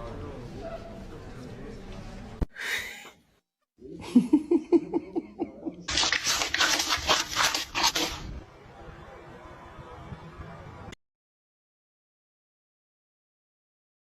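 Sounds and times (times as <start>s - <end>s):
person laughing: 4.0s - 6.0s.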